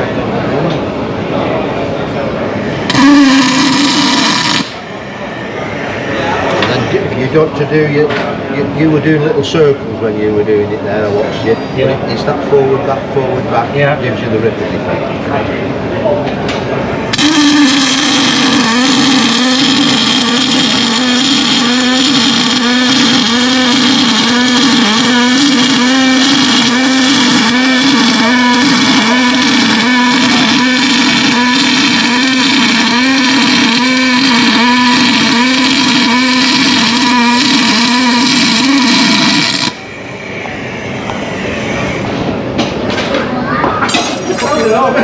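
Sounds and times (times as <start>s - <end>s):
welder arc buzzing and crackling: 2.8s - 5.0s, 17.1s - 40.1s.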